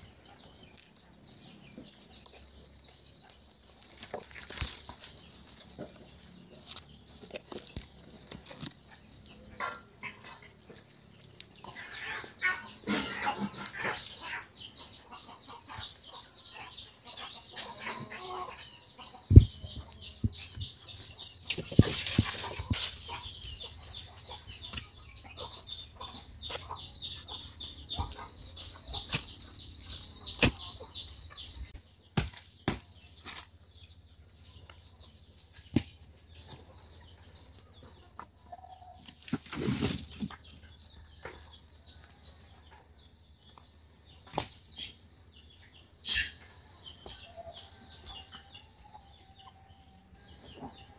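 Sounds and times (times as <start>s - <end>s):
chickens clucking: 0.0s - 31.8s, 34.3s - 50.9s.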